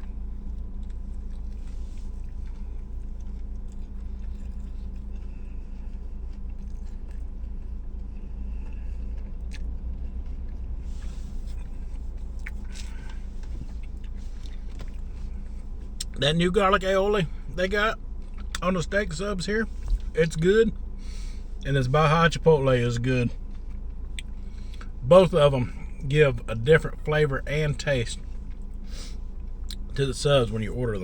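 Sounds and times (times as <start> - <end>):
person chewing sandwich: 0.0 - 16.2, 18.1 - 18.6, 23.4 - 25.0, 28.2 - 29.9
low hum: 0.0 - 31.0.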